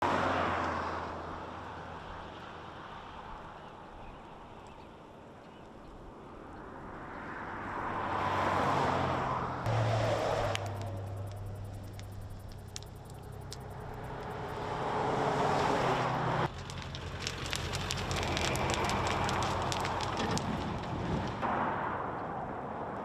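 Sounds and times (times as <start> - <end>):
cars passing on road: 0.0 - 23.0
steady low hum: 9.7 - 14.8.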